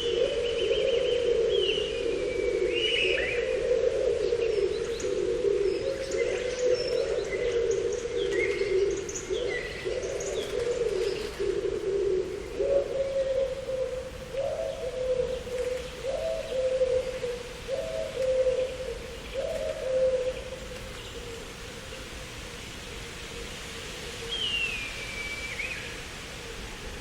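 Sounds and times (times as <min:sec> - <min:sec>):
dove cooing: 0:00.0 - 0:21.9.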